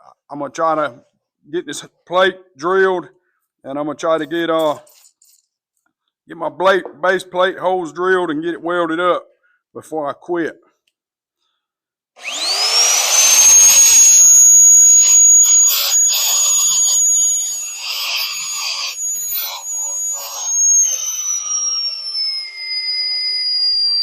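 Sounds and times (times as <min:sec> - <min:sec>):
drill cutting into steel: 0:12.2 - 0:24.0
electric drill whining: 0:12.2 - 0:24.0.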